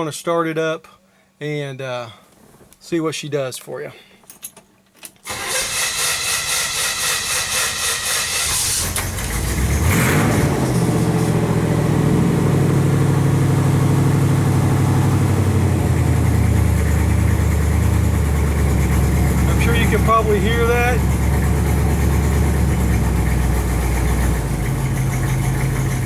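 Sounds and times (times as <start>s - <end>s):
engine cranking on starter: 5.1s - 13.3s, 15.4s - 26.0s
car engine idling: 8.4s - 26.0s.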